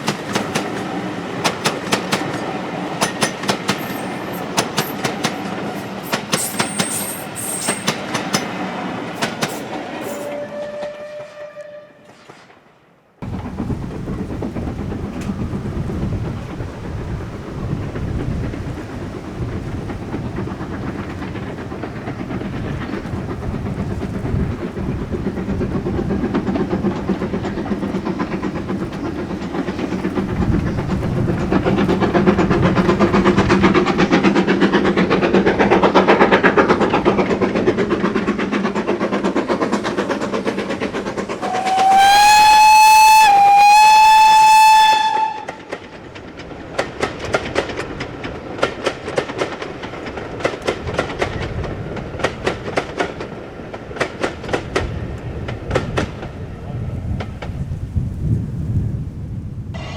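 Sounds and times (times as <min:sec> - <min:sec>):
wheels clicking over rail joints: 0:00.0 - 0:10.9, 0:13.2 - 0:58.8
steam locomotive passing: 0:00.0 - 0:59.9
steam whistle: 0:10.0 - 0:12.3, 0:41.4 - 0:45.7.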